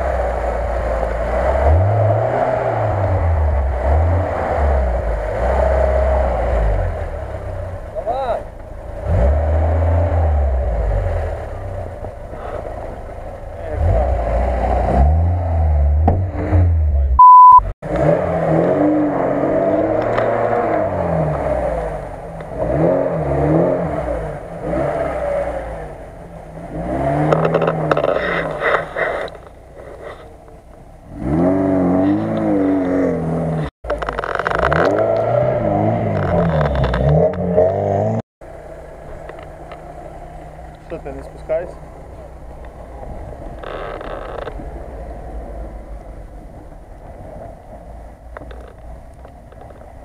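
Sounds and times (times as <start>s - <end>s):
car engines revving: 0.0s - 50.0s
short loud electronic beep: 17.2s - 17.7s.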